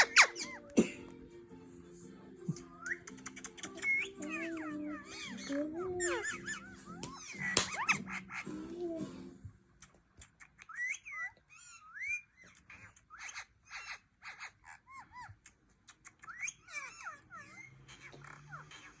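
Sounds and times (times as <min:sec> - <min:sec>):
parakeet chirping and whistling: 0:00.0 - 0:00.7, 0:02.6 - 0:08.5, 0:10.6 - 0:15.2, 0:16.2 - 0:19.0.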